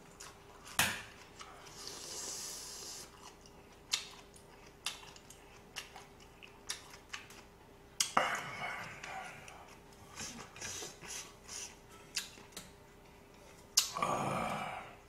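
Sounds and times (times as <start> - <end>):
breathy hiss: 1.5 - 3.1
wet mouth clicks from chewing: 3.1 - 8.2.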